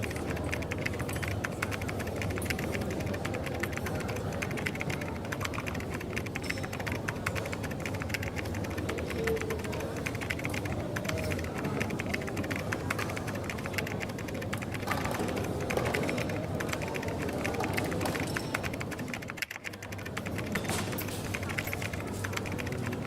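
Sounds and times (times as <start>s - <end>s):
coffee shop background noise: 0.0s - 23.0s
computer keyboard typing: 0.0s - 23.0s.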